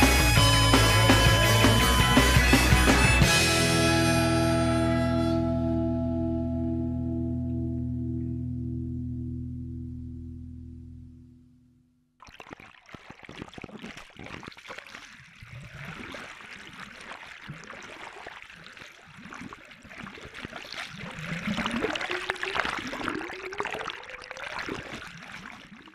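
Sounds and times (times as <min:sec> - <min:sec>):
sea water splashing and gurgling: 0:12.2 - 0:25.9.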